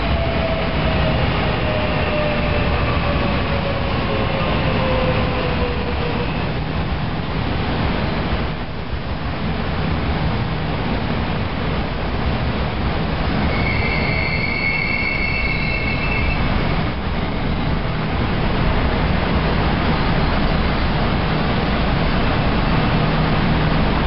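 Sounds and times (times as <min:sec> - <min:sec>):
train rumbling past: 0:00.0 - 0:24.0
high metallic wheel squeal: 0:13.4 - 0:16.6.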